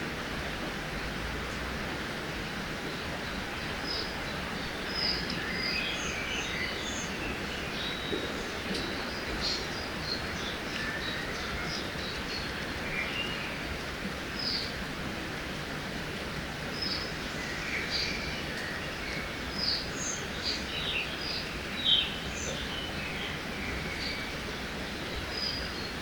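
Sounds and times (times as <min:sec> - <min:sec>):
river water rushing: 0:00.0 - 0:26.0
small birds chirping: 0:16.8 - 0:24.4.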